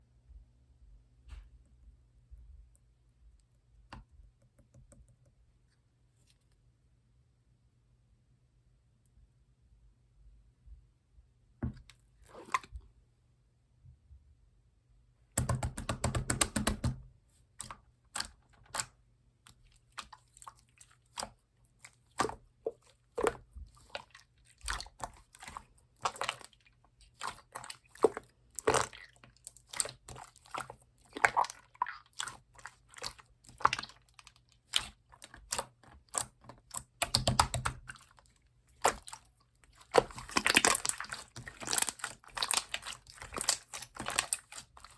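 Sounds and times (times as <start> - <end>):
slime squished by hand: 19.5 - 44.9.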